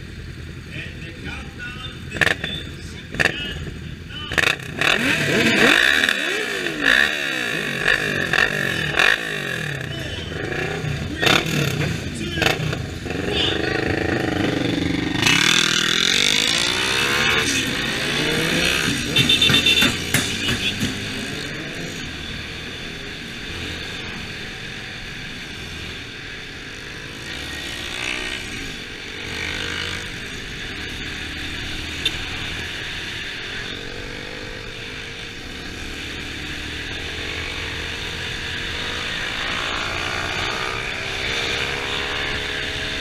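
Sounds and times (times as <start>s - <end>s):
motorcycle engines revving: 0.0s - 43.0s.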